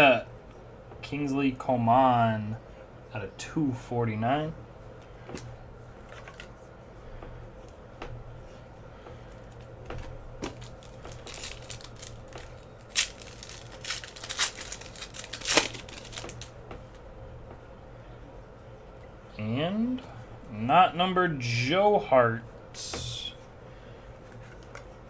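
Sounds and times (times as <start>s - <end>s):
foil wrapper crinkling and tearing: 10.4s - 16.5s.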